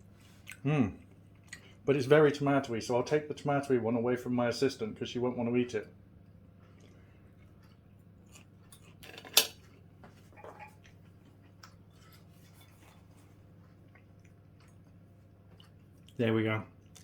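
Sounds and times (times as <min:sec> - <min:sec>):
cutlery clatter: 0:08.7 - 0:09.6
cutlery clinking on plate: 0:09.0 - 0:09.6.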